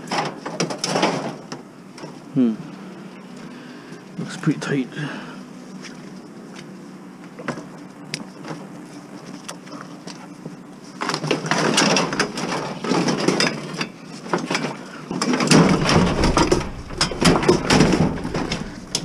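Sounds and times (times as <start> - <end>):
scrap metal clattering and scraping: 11.3 - 19.0
sharp metal knocks and bangs: 15.4 - 19.0.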